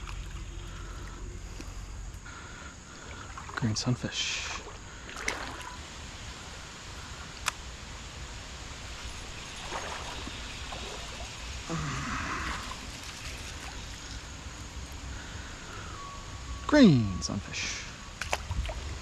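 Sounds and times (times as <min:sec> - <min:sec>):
creek water running: 0:00.0 - 0:15.4
water splash: 0:09.0 - 0:11.7.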